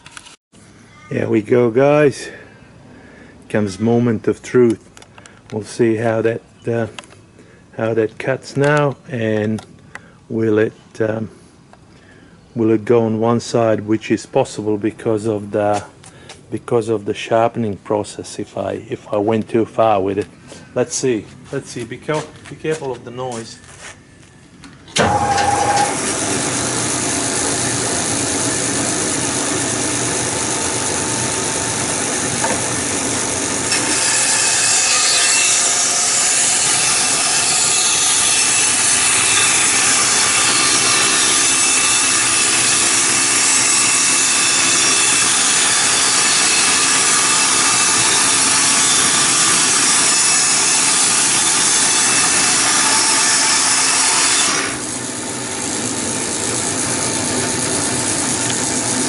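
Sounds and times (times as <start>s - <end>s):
bandsaw blade cutting: 25.0s - 59.0s
bandsaw running: 25.0s - 59.0s.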